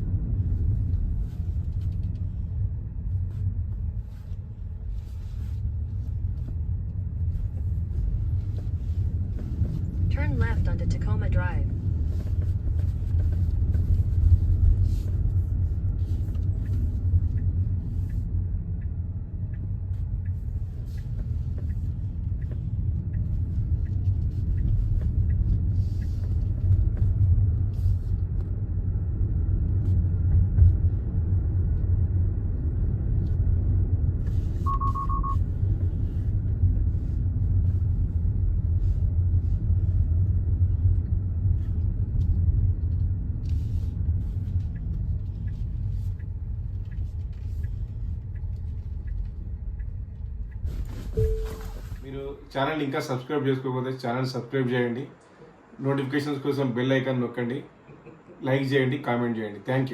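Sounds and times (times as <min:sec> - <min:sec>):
tyre and road noise: 0:00.0 - 0:53.2
brief electronic beep: 0:34.7 - 0:35.4, 0:51.2 - 0:52.0.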